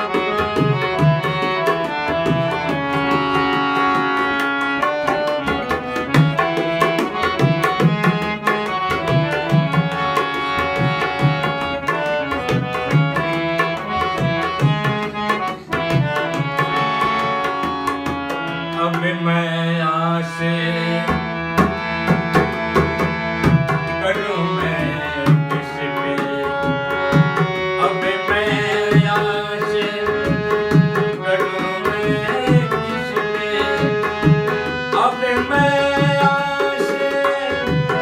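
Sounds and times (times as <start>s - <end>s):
tabla rhythm: 0.0s - 38.0s.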